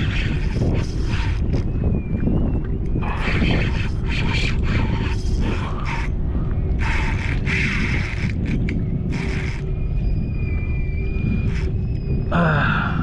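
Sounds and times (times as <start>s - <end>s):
fishing reel drag buzzing: 0.0s - 1.6s, 3.2s - 9.8s, 11.4s - 11.8s
thin steady whine: 0.0s - 12.6s
wind rumbling on microphone: 0.0s - 13.0s.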